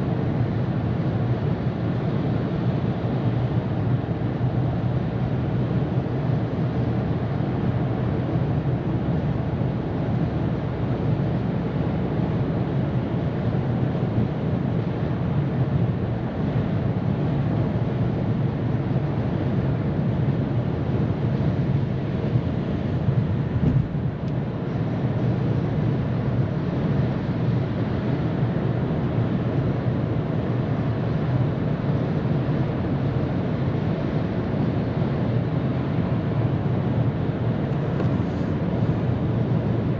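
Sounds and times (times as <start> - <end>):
tyre roar and wind rush: 0.0 - 39.9.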